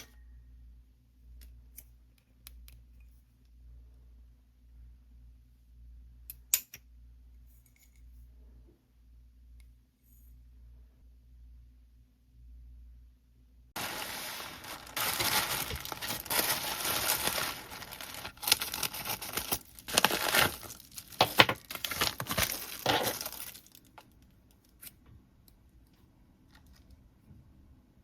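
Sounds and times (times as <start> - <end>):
packaging crinkling and tearing: 13.8 - 24.0.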